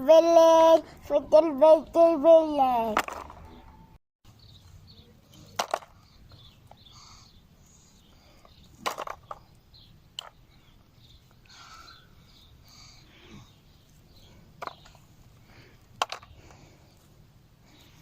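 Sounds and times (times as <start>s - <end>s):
faint bird chirps: 3.5s - 15.1s.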